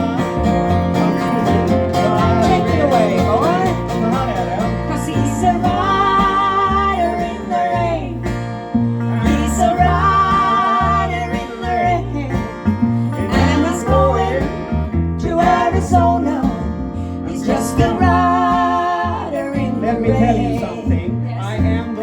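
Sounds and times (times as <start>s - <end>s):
acoustic guitars: 0.0s - 22.0s
banjo: 0.0s - 22.0s
double bass line: 0.0s - 22.0s.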